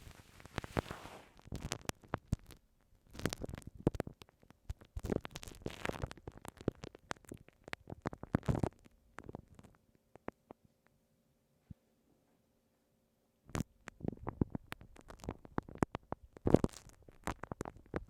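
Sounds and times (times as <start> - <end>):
soft brushing hiss: 0.0 - 1.4
glue stick rubbing on microphone: 0.0 - 8.8.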